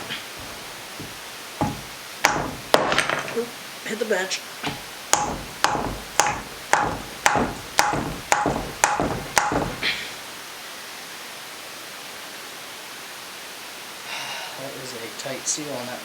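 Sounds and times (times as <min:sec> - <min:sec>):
steady background hiss: 0:00.0 - 0:16.0
hammer blows on metal: 0:01.0 - 0:03.1, 0:04.6 - 0:10.2.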